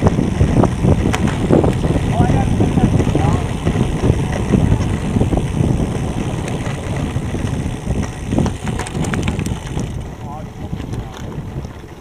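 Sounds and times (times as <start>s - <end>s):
tyres crunching on gravel: 0.0s - 11.8s
gravel stones clicking: 0.0s - 12.0s
wind buffeting microphone: 0.0s - 12.0s.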